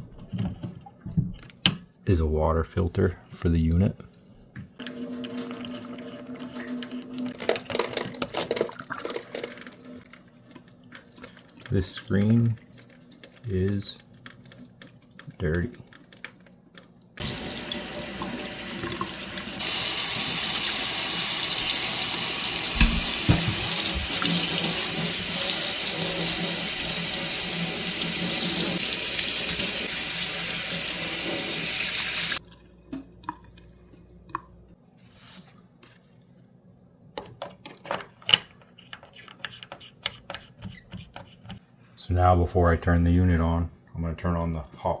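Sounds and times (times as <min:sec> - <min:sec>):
water running from faucet: 0:17.2 - 0:32.4
dull knocks: 0:22.8 - 0:24.2.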